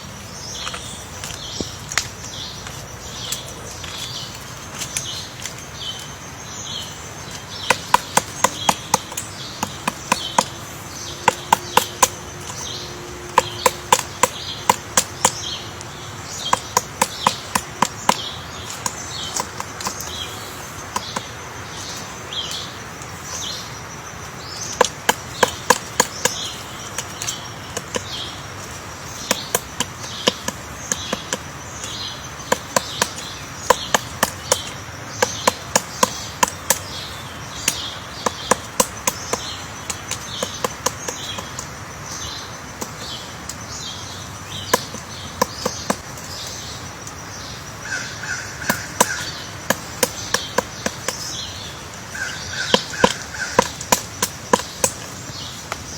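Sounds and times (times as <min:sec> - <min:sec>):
high bird calls: 0:00.0 - 0:55.9
woodpecker tapping wood: 0:00.4 - 0:55.9.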